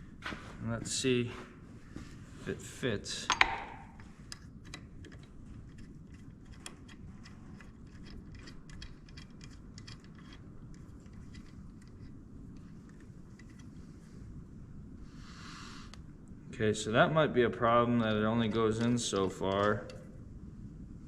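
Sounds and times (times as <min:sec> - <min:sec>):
low background hum: 0:00.0 - 0:21.0
metal tool bit clicks and scrapes: 0:04.4 - 0:12.1.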